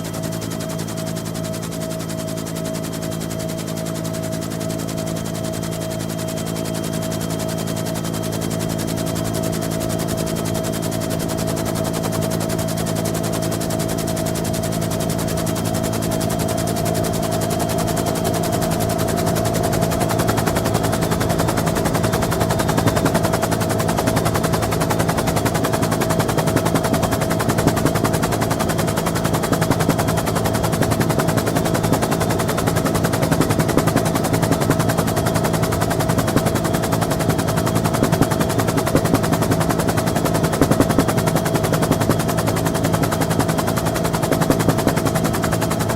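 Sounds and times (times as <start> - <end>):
helicopter engine drone and whine: 0.0 - 45.9
helicopter rotor blade chop: 9.2 - 45.9.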